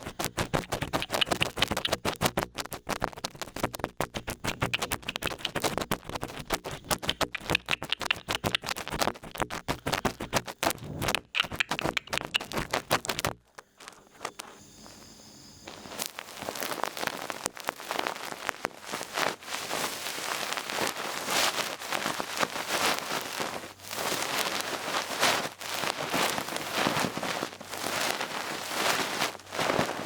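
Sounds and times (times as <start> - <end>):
ear pick scratching in ear: 0.0 - 14.6.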